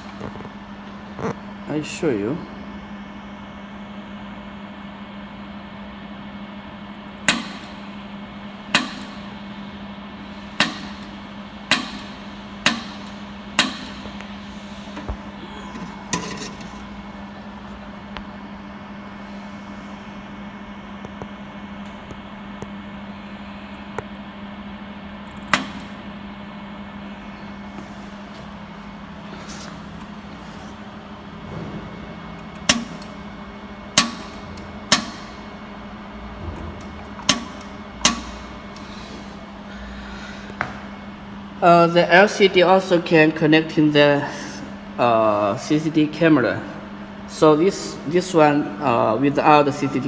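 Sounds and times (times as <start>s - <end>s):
steady electrical hum: 0.0s - 50.0s
laser welder pulse snaps: 32.6s - 33.2s, 36.8s - 38.9s.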